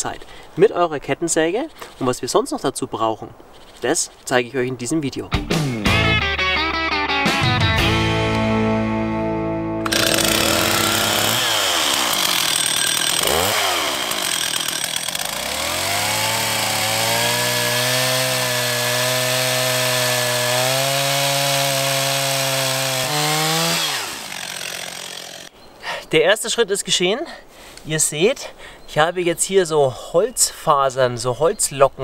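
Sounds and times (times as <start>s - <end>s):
chainsaw cutting wood: 9.8s - 25.5s.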